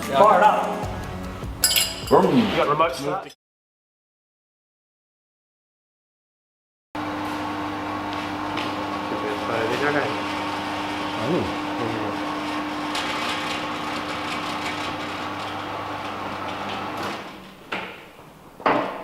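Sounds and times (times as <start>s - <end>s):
mechanical hum: 7.0s - 19.0s.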